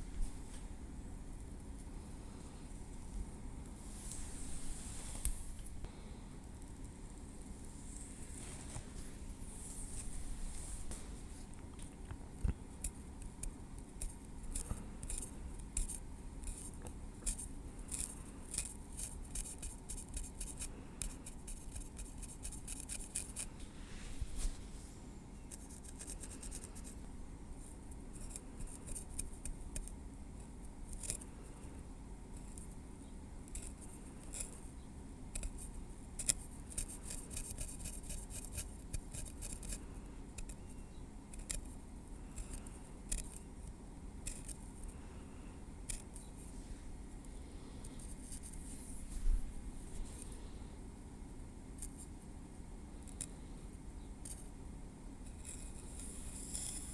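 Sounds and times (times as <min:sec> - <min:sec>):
tweezers ticking and scraping hair: 0:11.7 - 0:23.5, 0:25.5 - 0:26.7, 0:27.9 - 0:31.3, 0:33.4 - 0:45.0, 0:45.8 - 0:46.3, 0:51.7 - 0:52.2, 0:53.0 - 0:53.4, 0:54.2 - 0:54.5, 0:55.2 - 0:56.9.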